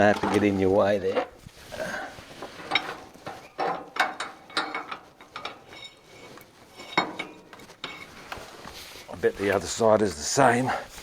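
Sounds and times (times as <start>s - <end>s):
hand tools clinking on steel: 2.5s - 8.6s.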